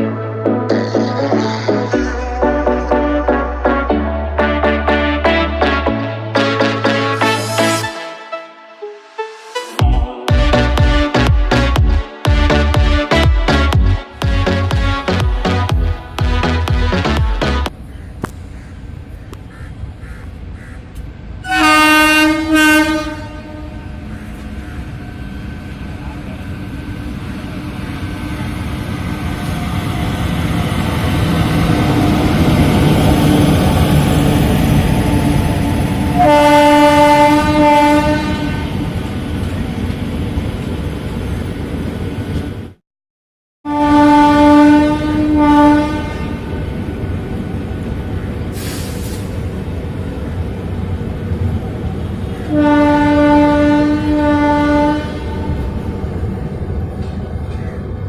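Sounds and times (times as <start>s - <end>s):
locomotive horn blasts: 21.4s - 24.1s, 36.1s - 38.8s, 43.7s - 46.6s, 52.5s - 55.6s
train carriages rumbling: 23.2s - 42.8s, 44.0s - 58.0s.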